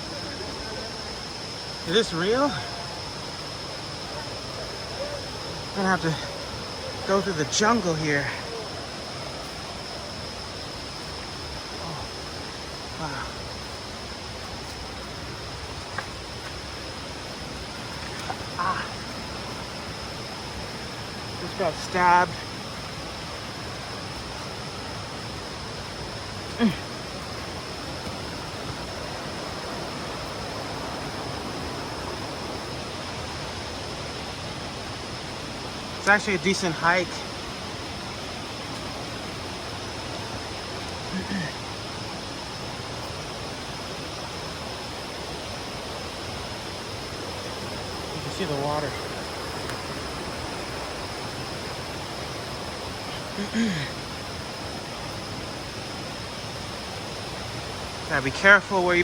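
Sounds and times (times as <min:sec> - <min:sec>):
stream water rushing: 0:00.0 - 0:59.0
thin steady high tone: 0:00.0 - 0:59.0
vocal grunt: 0:26.5 - 0:26.9, 0:41.1 - 0:41.6, 0:53.4 - 0:54.0.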